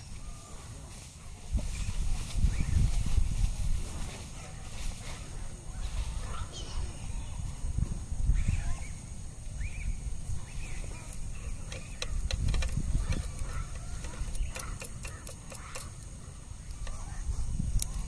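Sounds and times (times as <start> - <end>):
sharp clicks: 11.6 - 17.1.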